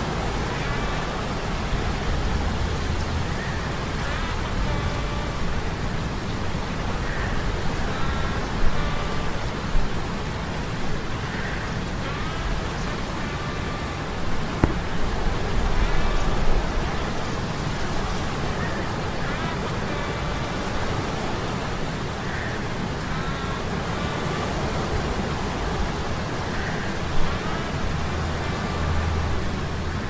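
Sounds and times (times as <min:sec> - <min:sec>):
rain: 0:00.0 - 0:30.0
brief bump: 0:14.6 - 0:14.9.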